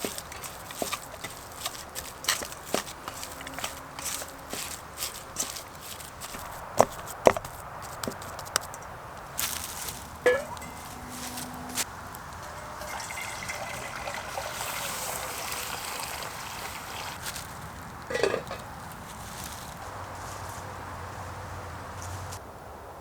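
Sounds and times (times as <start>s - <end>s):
water trickling: 0.0s - 7.1s, 9.4s - 18.7s.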